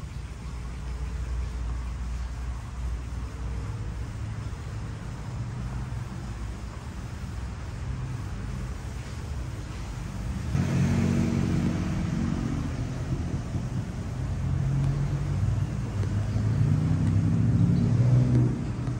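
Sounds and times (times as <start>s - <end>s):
vehicle engine running: 10.3s - 18.9s.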